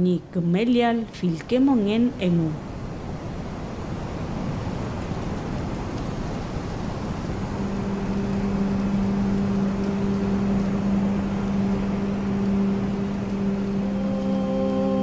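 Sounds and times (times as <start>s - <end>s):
even rushing noise: 1.5s - 15.0s
low drone note: 6.9s - 15.0s
higher tones: 7.0s - 15.0s.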